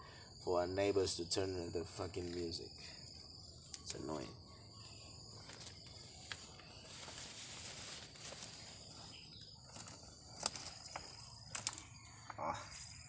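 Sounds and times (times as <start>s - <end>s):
crickets trilling: 0.0s - 13.0s
sharp clicks: 3.7s - 4.1s, 9.8s - 11.9s
rustling: 5.3s - 11.9s.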